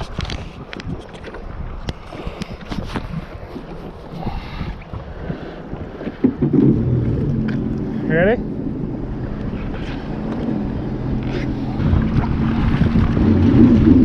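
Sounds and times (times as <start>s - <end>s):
personal watercraft engine: 0.0s - 14.0s
water slapping against hull: 0.0s - 14.0s
wind buffeting microphone: 0.0s - 14.0s.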